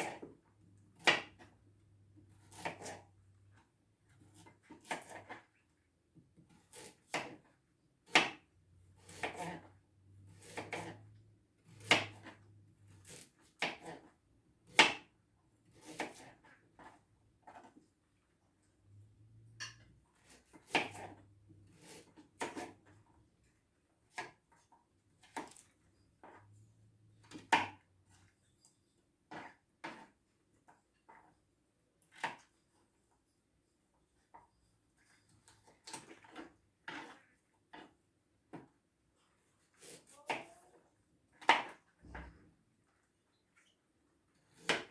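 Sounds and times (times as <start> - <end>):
knife chopping on cutting board: 1.0 - 1.5, 2.4 - 3.0, 6.5 - 7.4, 8.1 - 9.6, 10.3 - 11.0, 11.7 - 12.4, 13.0 - 14.0, 20.2 - 21.2, 21.8 - 22.7, 44.6 - 44.9.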